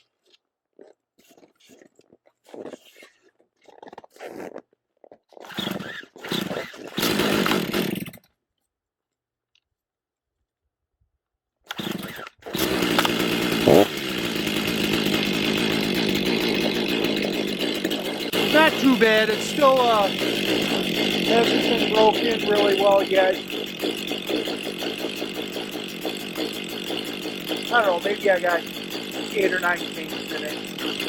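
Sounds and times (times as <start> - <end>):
chainsaw starter cord pulls: 5.3 - 8.3, 11.7 - 31.0
chainsaw engine running: 5.5 - 8.2, 11.7 - 31.0.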